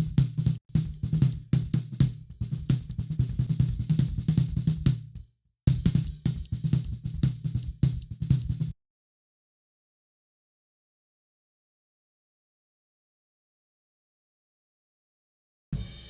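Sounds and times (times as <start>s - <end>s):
drum kit groove: 0.0s - 8.8s, 15.8s - 16.0s.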